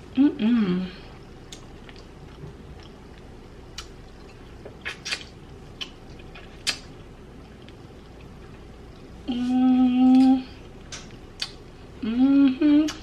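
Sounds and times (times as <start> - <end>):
low background hum: 0.0 - 13.0
mouth clicks and smacks chewing: 1.5 - 8.3, 10.1 - 11.6.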